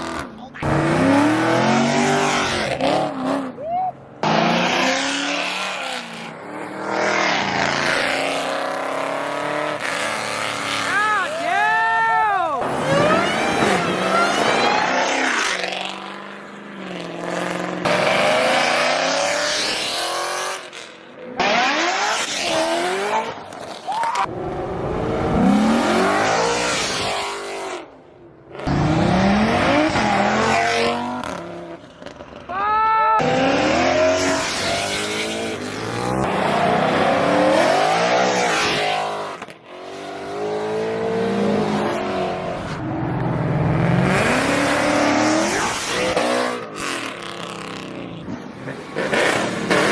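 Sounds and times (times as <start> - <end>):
car engines revving: 0.0 - 32.5, 33.2 - 49.9.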